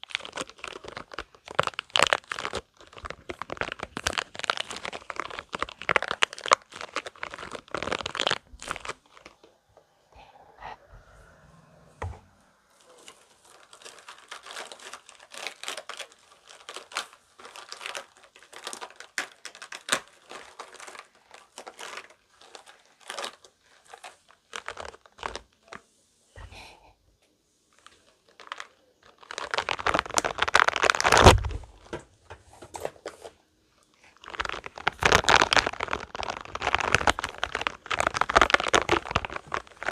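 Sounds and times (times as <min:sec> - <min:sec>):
rubber balls squeezed in hands: 0:00.0 - 0:09.4, 0:28.2 - 0:31.9, 0:34.2 - 0:39.9.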